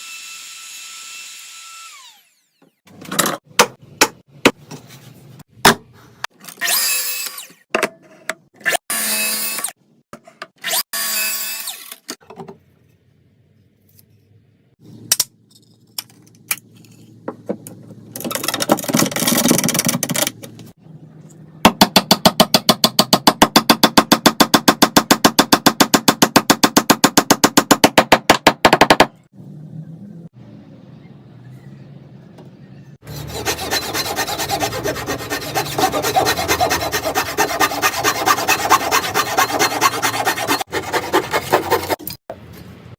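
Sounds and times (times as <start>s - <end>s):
power tool cutting wood: 0.0s - 2.8s, 33.1s - 42.0s.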